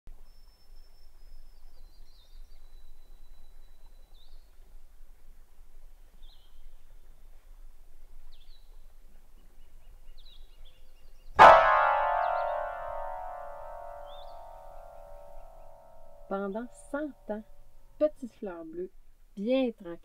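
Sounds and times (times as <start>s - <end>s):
songbird whistling and chirping: 0.2s - 4.6s
low hum: 0.2s - 19.4s.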